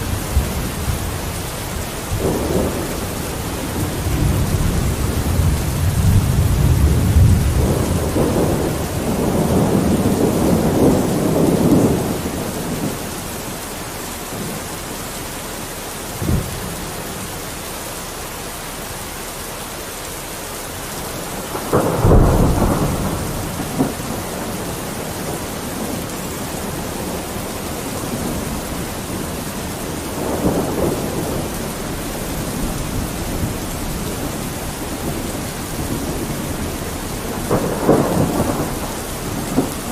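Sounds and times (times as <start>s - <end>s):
thunder clap: 0.0s - 13.2s, 21.4s - 39.9s
thunder rumbling: 0.0s - 18.1s, 20.7s - 39.9s
rain on a window: 0.0s - 39.9s.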